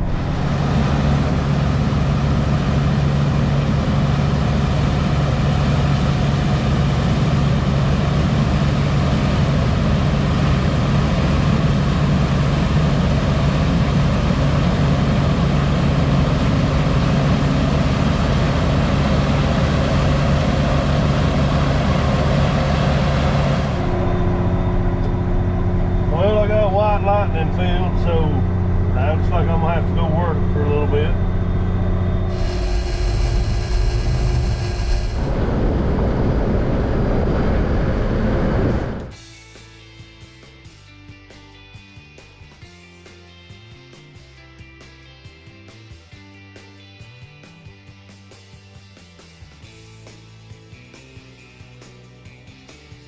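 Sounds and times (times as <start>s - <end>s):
dense rushing noise: 0.0s - 7.0s, 15.1s - 39.2s
tractor engine running: 0.0s - 39.2s.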